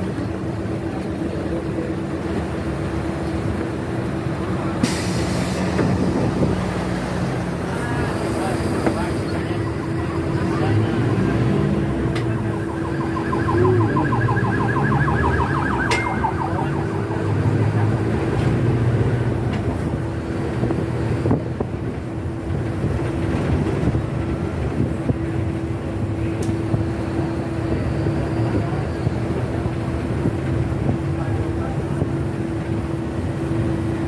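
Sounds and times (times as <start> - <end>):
vehicle rumble: 0.0 - 34.0
warbling alarm tone: 9.0 - 18.8.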